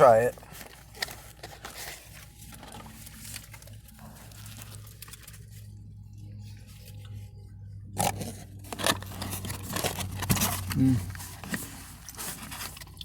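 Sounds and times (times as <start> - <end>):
low hum: 0.4 - 13.0
chewing crunchy fried chicken: 8.0 - 13.0.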